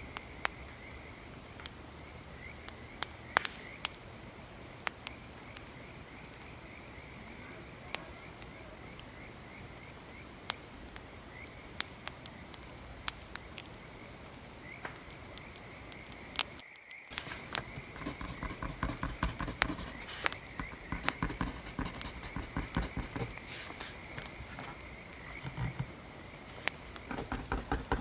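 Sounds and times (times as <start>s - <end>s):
pencil writing on paper: 17.1s - 28.0s.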